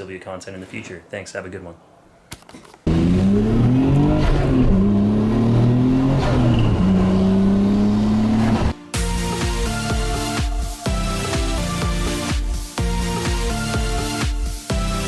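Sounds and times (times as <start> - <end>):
car engine revving: 2.9 - 8.8.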